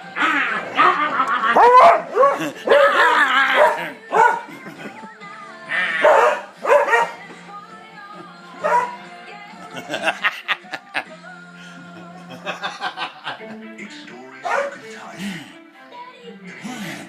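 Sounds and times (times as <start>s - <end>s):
background music: 0.0s - 17.0s
dog barking and yipping: 0.7s - 4.5s, 5.9s - 7.2s, 8.6s - 9.0s, 14.4s - 14.8s.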